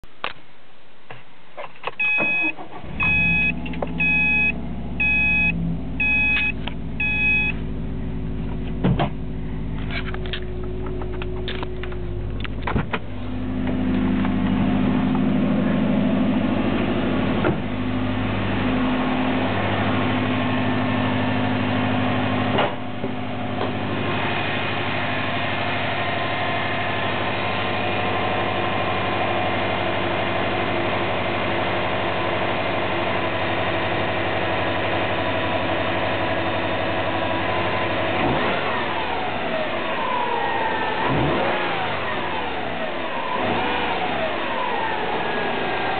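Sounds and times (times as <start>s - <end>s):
car warning chime beeping: 2.0s - 7.6s
car engine idling: 2.0s - 45.9s.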